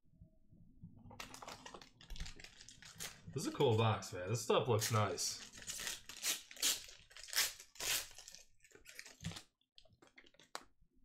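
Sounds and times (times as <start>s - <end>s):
plastic wrapper crinkling: 1.1s - 3.9s, 4.8s - 10.6s.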